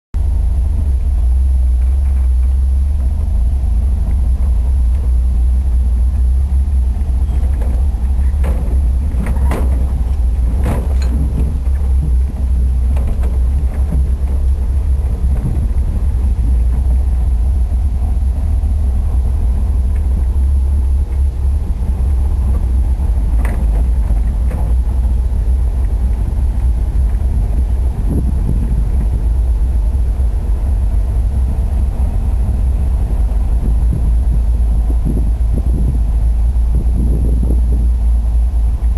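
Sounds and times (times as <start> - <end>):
bus engine rumbling: 0.1 - 38.9
sharp knocks and clunks: 6.9 - 17.2, 22.5 - 25.2.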